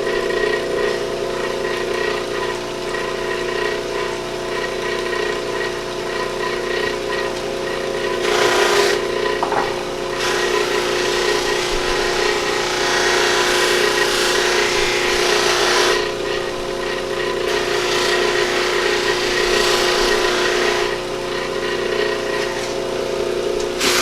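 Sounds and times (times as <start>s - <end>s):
buffing wheel motor hum: 0.0s - 24.0s
antler rubbing on buffing wheel: 10.2s - 16.7s, 17.4s - 21.1s.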